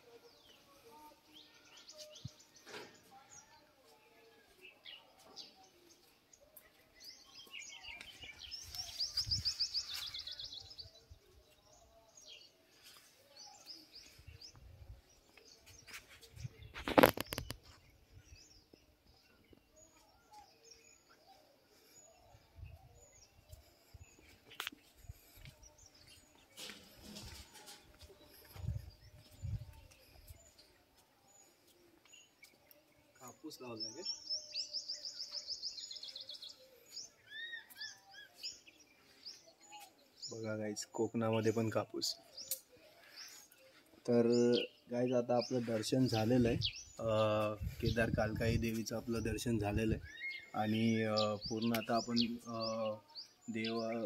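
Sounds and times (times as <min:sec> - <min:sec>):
birds chirping and calling: 0:04.6 - 0:54.0
fast trilling birdsong: 0:44.4 - 0:54.0.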